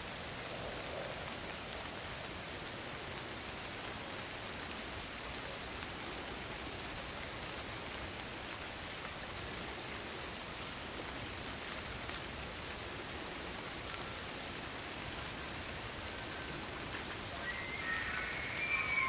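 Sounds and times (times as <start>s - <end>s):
steady rain falling: 0.0s - 19.0s
crickets chirping: 15.4s - 19.0s.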